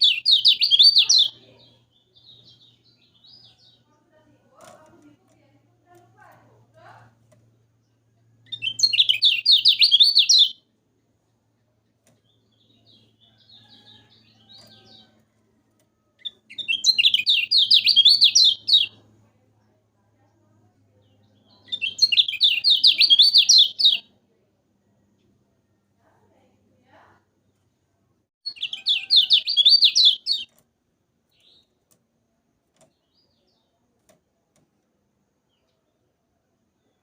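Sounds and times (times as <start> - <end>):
soft bird twittering: 0.0 - 4.0, 7.8 - 10.6, 16.2 - 19.0, 20.9 - 24.0, 28.5 - 30.5
bird singing chattering phrases: 0.0 - 5.1, 8.4 - 10.6, 16.2 - 19.0, 21.0 - 24.0, 28.5 - 30.5.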